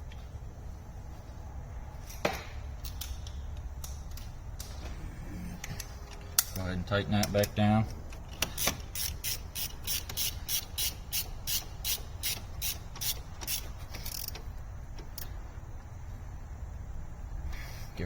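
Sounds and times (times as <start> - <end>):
ratchet wrench clicking: 2.8 - 4.8, 6.1 - 15.4.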